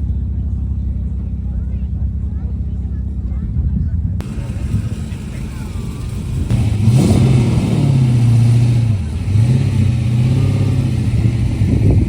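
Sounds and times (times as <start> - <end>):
vehicle engine revving: 4.2 - 12.0.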